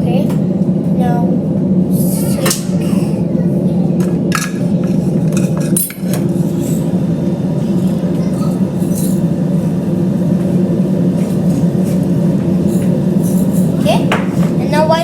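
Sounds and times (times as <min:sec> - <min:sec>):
kitchen appliance humming: 0:00.0 - 0:15.0.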